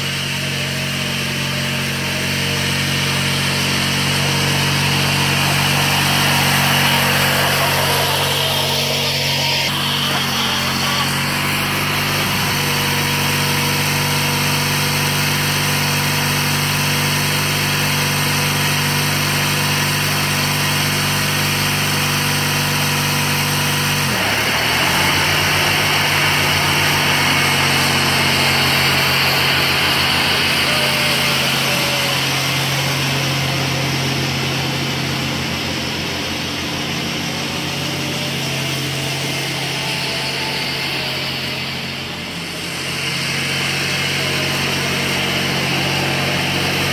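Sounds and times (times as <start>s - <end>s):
garden tractor engine running: 0.0s - 46.9s.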